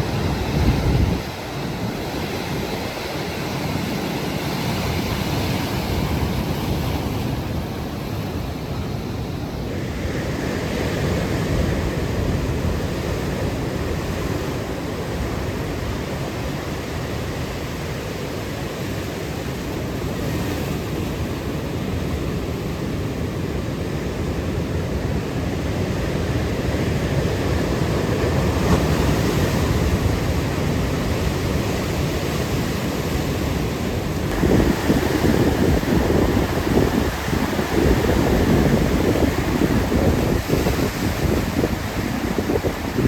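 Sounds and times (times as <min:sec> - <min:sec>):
wind noise on microphone: 0:00.0 - 0:14.6, 0:26.8 - 0:43.0
ocean surf washing in: 0:00.0 - 0:43.0.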